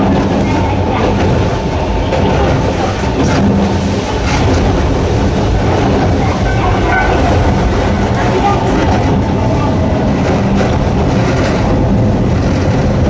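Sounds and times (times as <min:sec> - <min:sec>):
wheel-on-rail rumble: 0:00.0 - 0:13.0.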